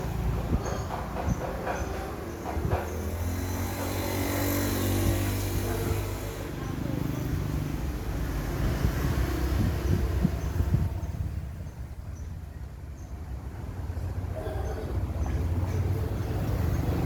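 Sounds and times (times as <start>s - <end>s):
knocks: 0.2s - 4.0s.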